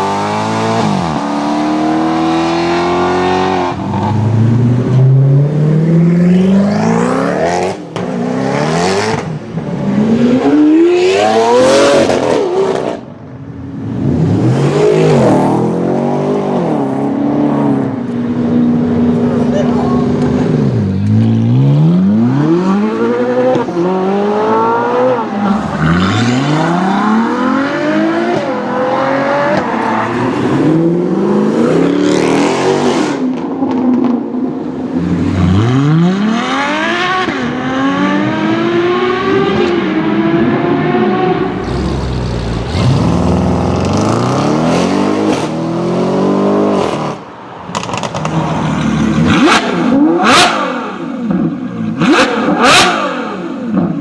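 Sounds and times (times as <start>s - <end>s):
supercar engine accelerating: 35.0s - 47.2s.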